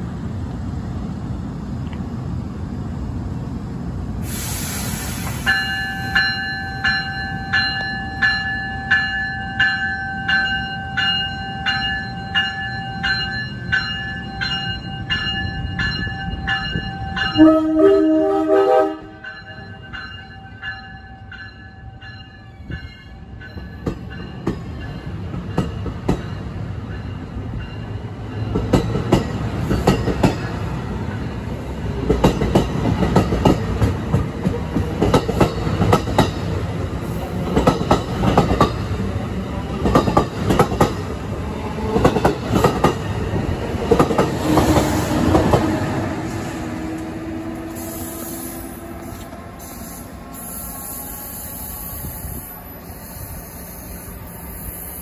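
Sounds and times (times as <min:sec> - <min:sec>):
train wheels clicking over rail joints: 0:27.8 - 0:39.0, 0:39.6 - 0:50.2.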